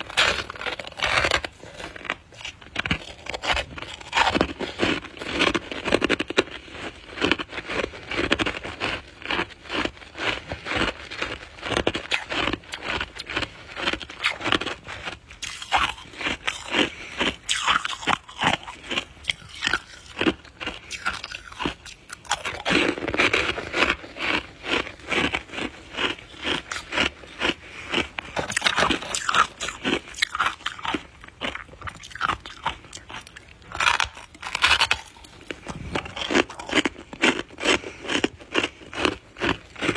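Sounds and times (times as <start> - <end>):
chewing shaved ice: 0.0 - 39.9.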